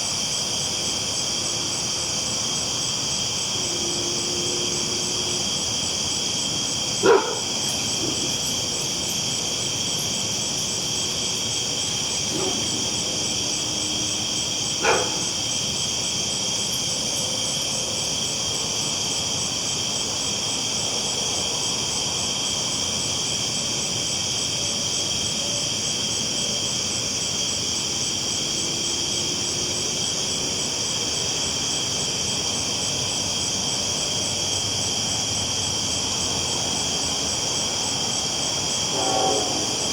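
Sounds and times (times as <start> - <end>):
night insects chorus: 0.0 - 39.9
train rumbling: 3.8 - 10.2, 36.1 - 39.9
dog barking: 7.0 - 8.3, 12.3 - 13.0, 14.8 - 15.4.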